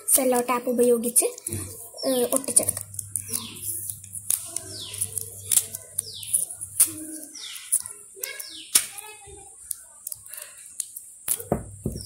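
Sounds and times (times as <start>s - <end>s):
bird chirping: 0.4s - 9.2s, 11.8s - 12.0s.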